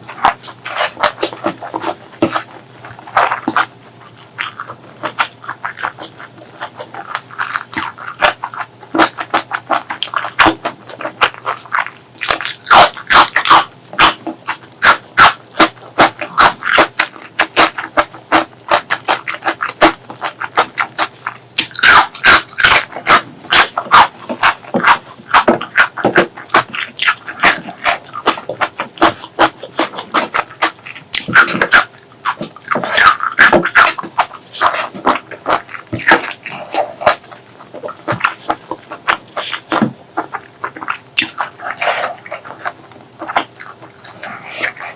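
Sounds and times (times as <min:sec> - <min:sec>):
rapid mouth clicks: 0:00.0 - 0:44.9
wet chewing and lip smacking: 0:00.0 - 0:44.9.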